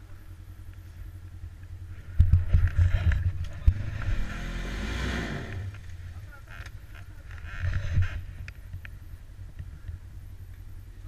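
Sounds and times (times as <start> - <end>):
motorcycle engine revving: 0.8 - 8.6.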